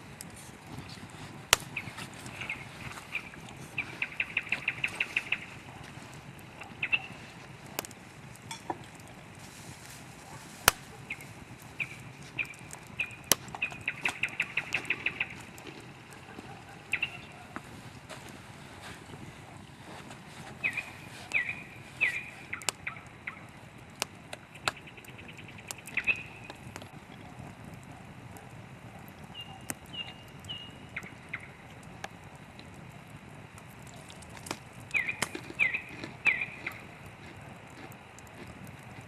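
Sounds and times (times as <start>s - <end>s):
campfire wood crackling and popping: 0.0s - 39.0s
songbird chirping: 1.6s - 7.9s, 10.8s - 18.2s, 20.5s - 26.7s, 29.2s - 31.8s, 34.8s - 38.2s.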